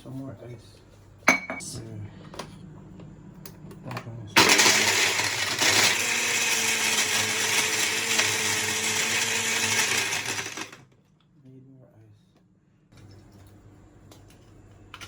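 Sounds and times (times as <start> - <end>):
blender blending ice: 4.4 - 10.9.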